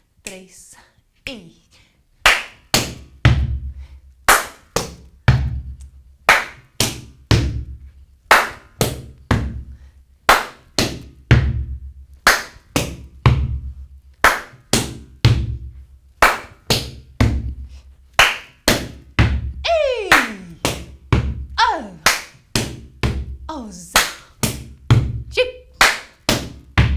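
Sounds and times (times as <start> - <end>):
hand claps: 2.2 - 3.6, 4.3 - 7.7, 8.3 - 9.7, 10.3 - 11.6, 12.2 - 13.6, 14.2 - 25.1, 25.8 - 26.9
hands slapping rubber boots: 4.3 - 9.7, 10.3 - 11.6, 12.2 - 23.4, 24.0 - 25.2, 25.8 - 26.9.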